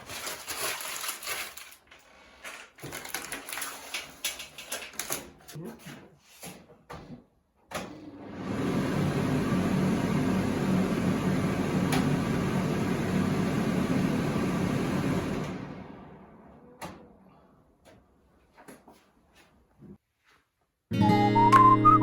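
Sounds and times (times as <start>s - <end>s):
extractor hood fan humming: 8.0s - 17.8s.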